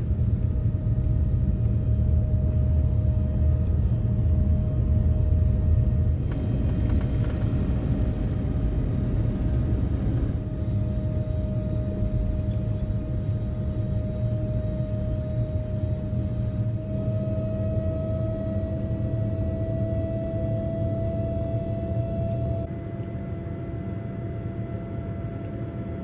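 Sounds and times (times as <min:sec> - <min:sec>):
steady whine: 0:00.0 - 0:16.6
airliner cabin low rumble: 0:00.0 - 0:26.0.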